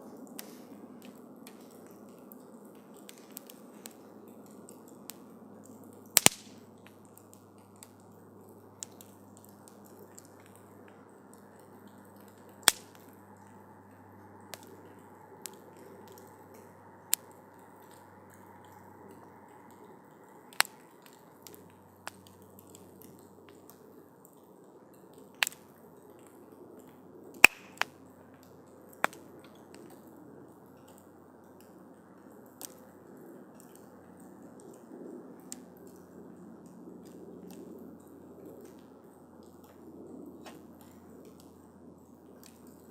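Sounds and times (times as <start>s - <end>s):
campfire crackling and popping: 0.0s - 42.9s
flames rushing: 8.8s - 13.6s, 14.4s - 23.9s.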